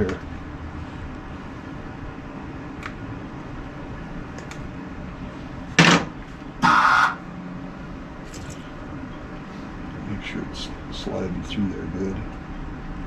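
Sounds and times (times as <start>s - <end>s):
welder bursts: 6.6s - 7.2s.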